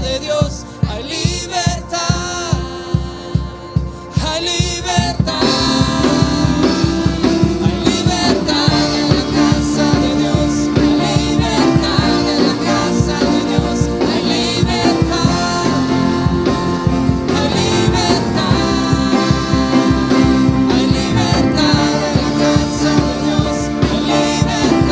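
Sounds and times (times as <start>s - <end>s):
guitar: 0.0s - 24.9s
keyboard: 0.0s - 24.9s
person singing: 0.0s - 24.9s
drum beat: 1.3s - 24.9s.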